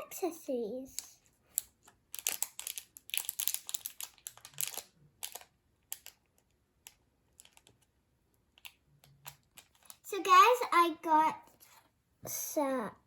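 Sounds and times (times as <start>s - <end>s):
small plastic clicks: 1.0s - 7.9s, 8.5s - 10.0s
plastic packets crinkling: 1.5s - 7.8s, 8.6s - 10.1s.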